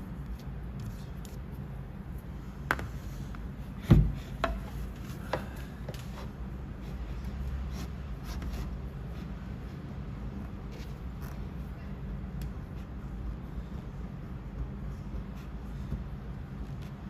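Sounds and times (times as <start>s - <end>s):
dull thump: 3.8s - 4.6s.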